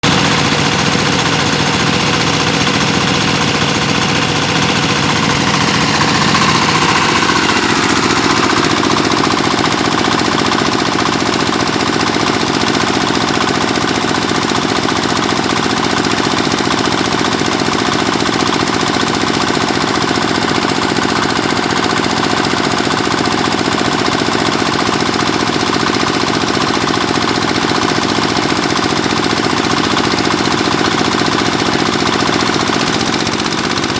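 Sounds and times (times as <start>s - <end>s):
drilling machine engine knocking: 0.0s - 33.9s.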